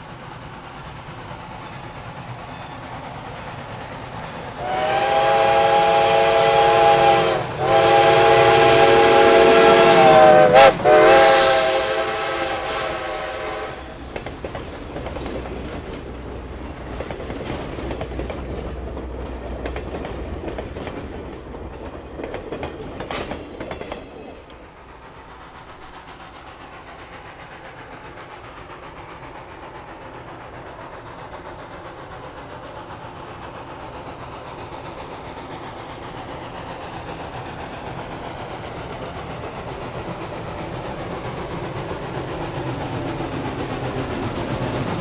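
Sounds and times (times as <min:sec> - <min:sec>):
steam train approaching: 0:00.0 - 0:45.0
train cars rolling on track: 0:00.0 - 0:45.0
wheels clacking on rail joints: 0:13.8 - 0:25.9.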